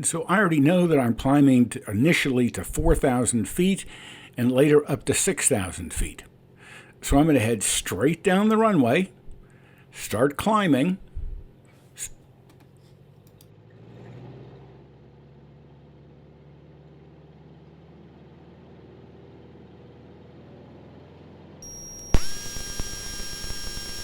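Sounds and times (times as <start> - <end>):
faint aircraft engine drone: 21.6 - 24.0
hydraulic pump whine: 21.6 - 24.0.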